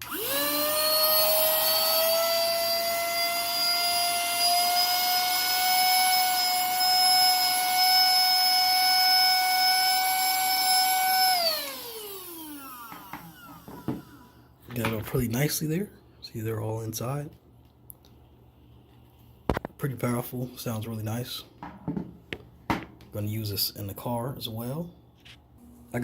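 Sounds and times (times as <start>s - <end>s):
handheld vacuum whining: 0.0s - 15.2s.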